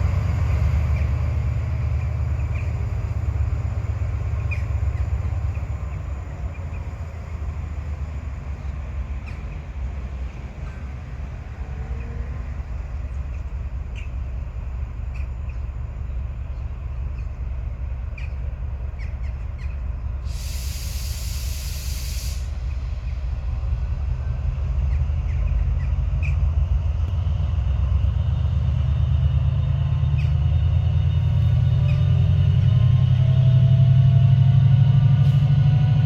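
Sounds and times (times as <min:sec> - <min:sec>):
train rumbling: 0:00.0 - 0:36.0
air brake hiss: 0:20.2 - 0:23.3.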